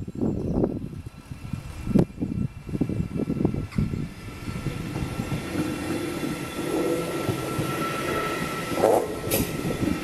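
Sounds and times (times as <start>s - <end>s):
train wheels rumbling and clacking: 0.4s - 10.0s
high wheel squeal: 6.3s - 9.8s.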